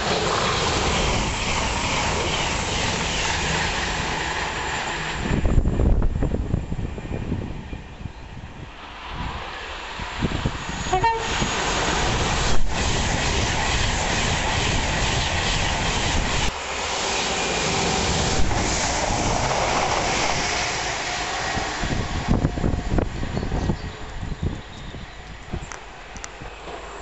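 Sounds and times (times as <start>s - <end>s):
train rushing past: 0.0s - 27.0s
train horn: 10.8s - 11.5s.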